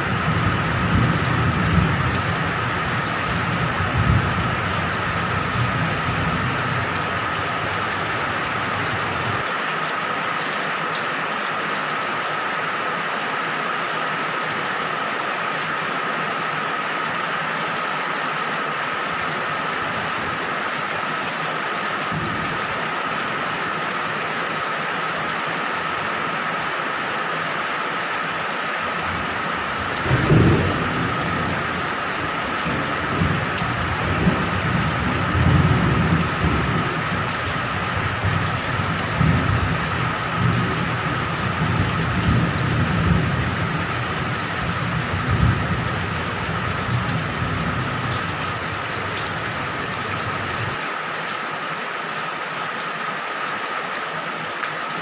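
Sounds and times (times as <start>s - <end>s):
steady rain hissing: 0.0s - 55.0s
rolling thunder: 0.2s - 9.4s, 29.8s - 50.8s
thunderclap: 3.8s - 9.4s, 41.5s - 50.8s.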